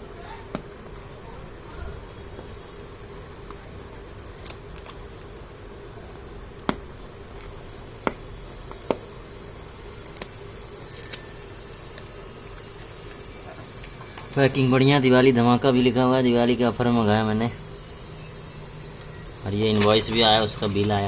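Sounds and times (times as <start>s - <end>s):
faint steady hum: 0.0s - 21.0s
packaging rustling: 19.0s - 21.0s.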